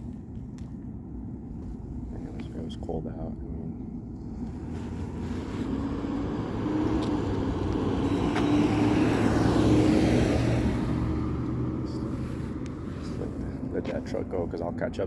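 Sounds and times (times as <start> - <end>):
vehicle passing by: 4.2 - 15.0.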